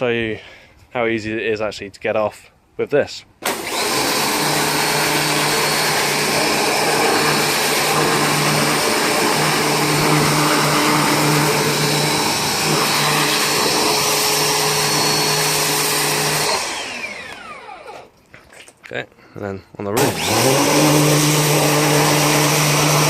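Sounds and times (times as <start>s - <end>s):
pressure washer motor humming: 3.4s - 18.1s, 20.0s - 23.0s.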